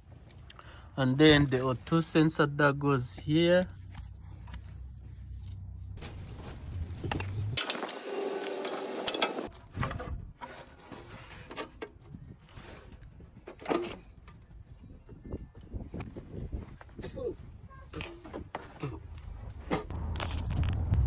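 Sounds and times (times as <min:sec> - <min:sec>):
low hum: 0:19.1 - 0:21.0.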